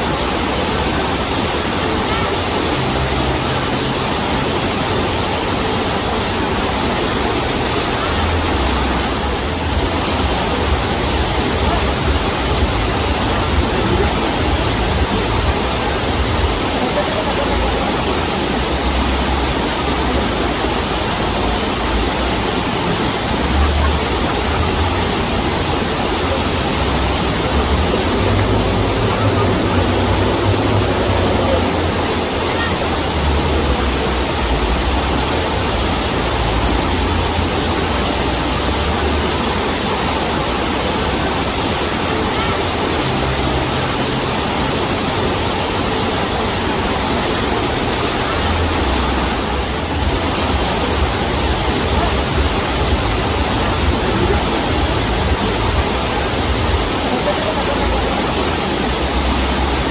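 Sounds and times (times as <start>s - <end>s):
waterfall rushing: 0.0s - 59.9s
deep rumble: 7.8s - 39.4s.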